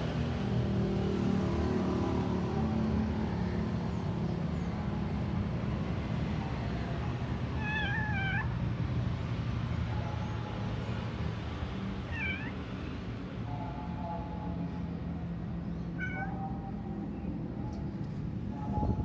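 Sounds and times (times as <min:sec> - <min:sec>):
cat yowling: 0:07.6 - 0:08.5, 0:12.1 - 0:12.6, 0:16.0 - 0:16.5.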